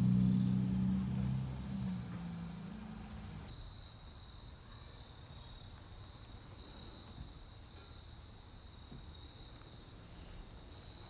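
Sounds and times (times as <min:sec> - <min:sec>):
car engine running low: 0:00.0 - 0:03.5
insects trilling: 0:00.0 - 0:03.5.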